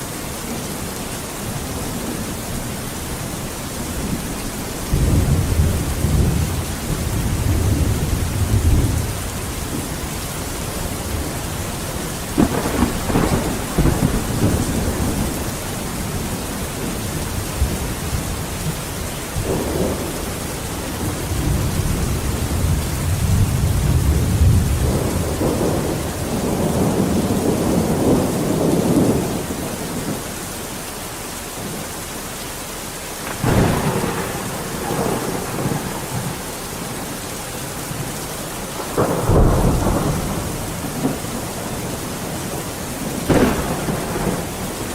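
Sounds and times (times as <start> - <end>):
heavy rain: 0.0 - 44.9
thunder rumbling: 1.4 - 30.4, 33.2 - 44.9
sharp thunder cracks: 12.3 - 17.0, 33.3 - 37.1, 38.8 - 44.9.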